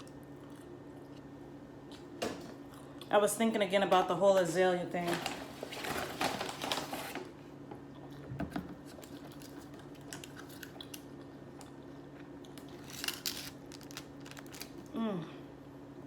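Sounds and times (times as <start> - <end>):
person chewing: 0.0 - 3.1
low steady hum: 0.0 - 16.0.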